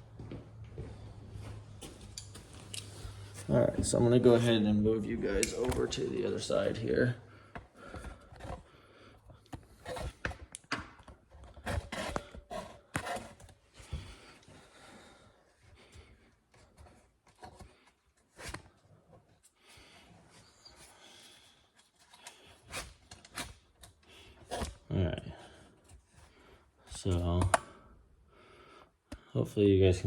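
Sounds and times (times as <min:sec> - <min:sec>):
handling clicks and rustles: 0:01.8 - 0:14.4.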